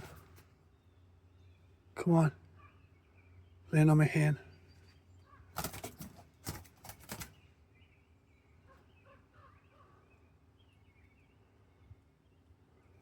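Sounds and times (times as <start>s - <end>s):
faint bird chirps: 0.0s - 6.0s, 7.0s - 13.0s
small bird fluttering wings: 5.6s - 7.4s.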